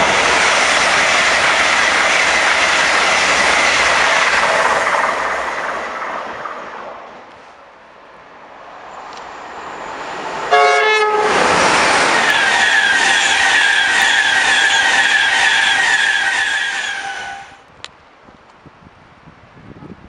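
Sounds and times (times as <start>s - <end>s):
train passing at speed: 0.0s - 17.7s
two-tone train horn: 10.5s - 11.4s, 12.2s - 17.6s.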